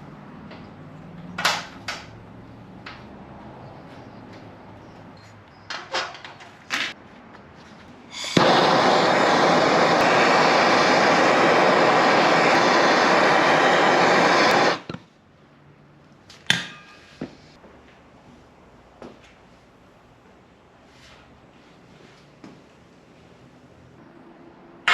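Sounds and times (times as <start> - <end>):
loud steady machine noise: 8.4 - 14.9.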